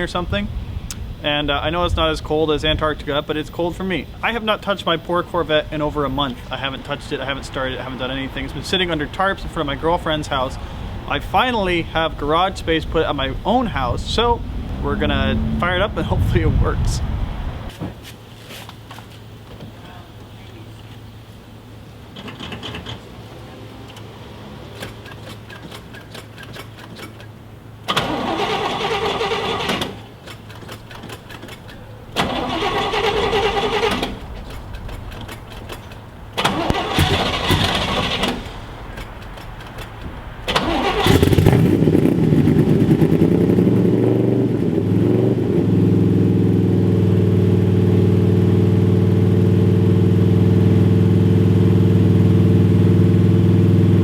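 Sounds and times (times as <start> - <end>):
car engine revving and idling: 5.4 - 17.7, 40.5 - 54.0
starter motor cranking: 27.9 - 39.1, 40.5 - 41.8.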